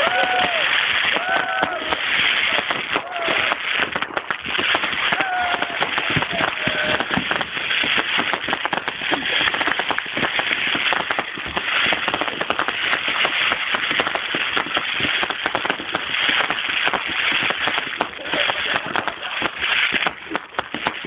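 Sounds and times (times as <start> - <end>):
fireworks crackling: 0.0 - 21.0.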